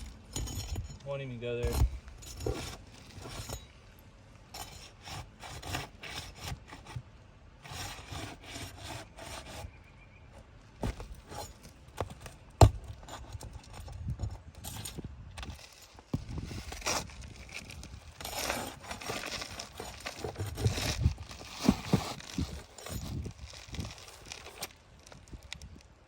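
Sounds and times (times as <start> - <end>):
metal bar scraping shingle: 0.0 - 3.8, 4.5 - 9.8, 10.4 - 24.8.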